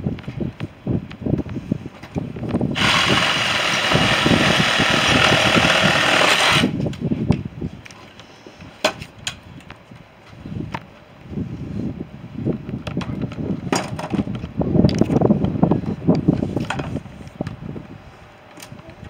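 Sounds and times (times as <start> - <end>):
handheld power tool running: 2.7 - 6.8.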